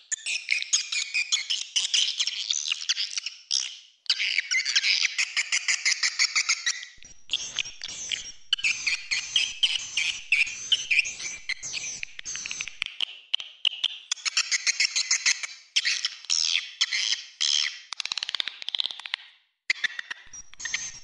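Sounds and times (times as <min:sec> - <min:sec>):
swiftlet twittering chirps: 0:07.3 - 0:12.8, 0:20.3 - 0:21.0.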